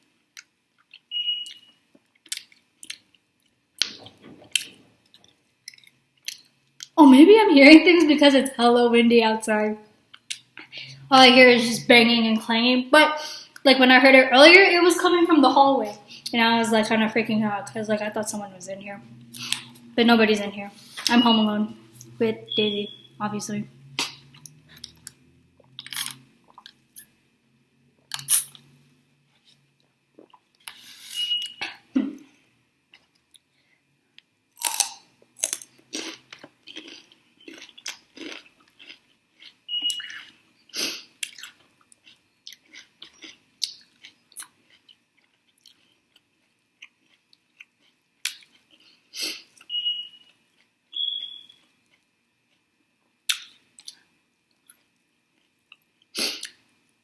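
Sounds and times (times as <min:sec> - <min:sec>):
crunching and chewing: 0:00.4 - 0:07.0, 0:19.3 - 0:19.8, 0:24.0 - 0:27.1, 0:28.0 - 0:28.7, 0:34.6 - 0:40.4, 0:41.0 - 0:56.7
short high squeaks: 0:31.0 - 0:31.7.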